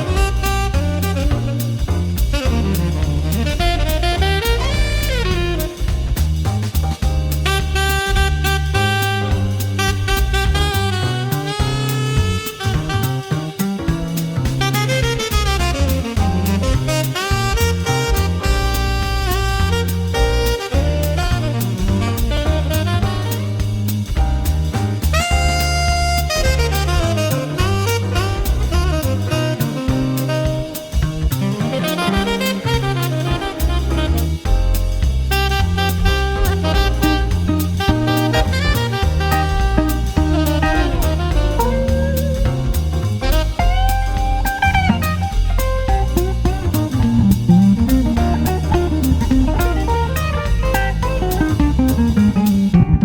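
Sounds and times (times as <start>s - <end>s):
drum kit beat: 0.0s - 53.0s
jazz saxophone tune: 0.0s - 53.0s
guitar: 36.4s - 53.0s.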